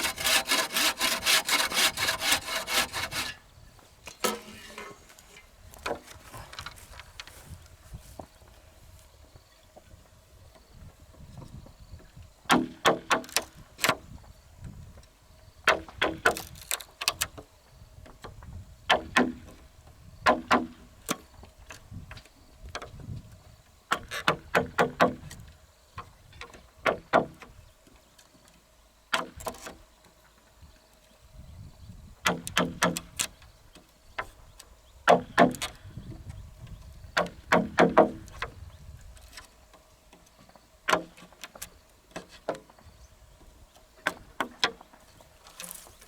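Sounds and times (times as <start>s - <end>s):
sharp knocks in bursts: 35.0s - 35.7s, 37.2s - 38.5s.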